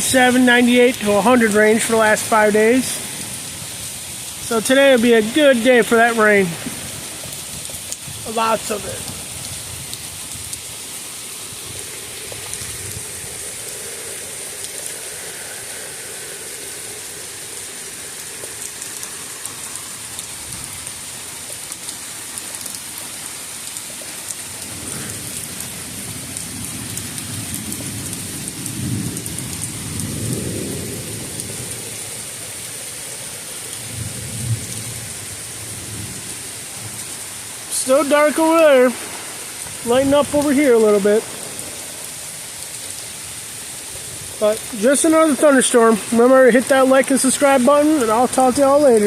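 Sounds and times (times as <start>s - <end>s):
steady rain: 0.0s - 49.0s
thunder rumbling: 24.6s - 32.3s, 33.8s - 42.6s.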